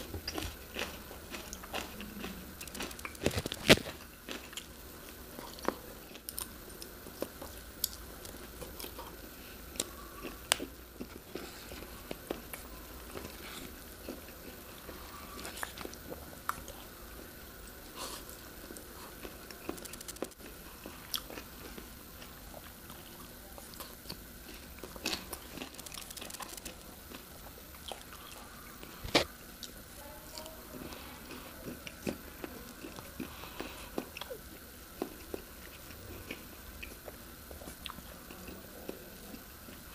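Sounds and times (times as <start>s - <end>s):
person chewing: 0.0s - 17.3s, 17.9s - 29.8s, 31.3s - 39.9s
sharp clicks and ticks: 19.7s - 20.4s, 25.7s - 26.8s.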